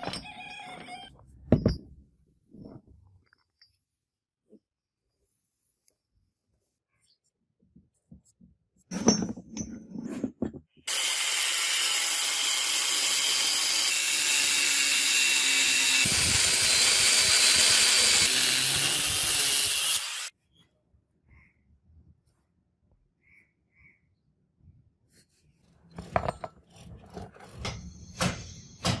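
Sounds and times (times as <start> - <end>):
power tool running: 10.9 - 20.3.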